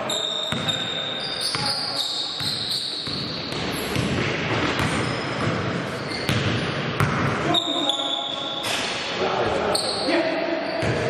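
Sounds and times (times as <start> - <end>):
sneakers squeaking: 0.0 - 11.0
basketball bouncing on court: 0.3 - 7.6, 10.8 - 11.0
players' voices: 7.3 - 11.0.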